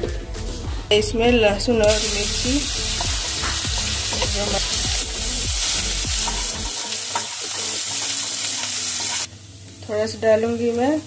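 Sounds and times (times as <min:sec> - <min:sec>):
spatula scraping a pan: 0:01.8 - 0:09.3
garlic sizzling in hot oil: 0:01.8 - 0:11.0.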